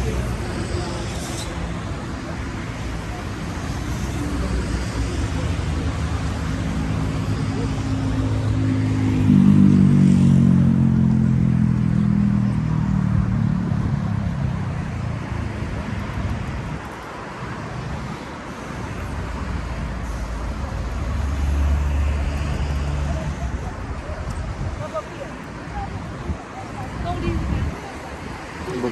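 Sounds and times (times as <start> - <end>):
street traffic: 0.0 - 28.9
vehicle passing by: 3.6 - 16.1.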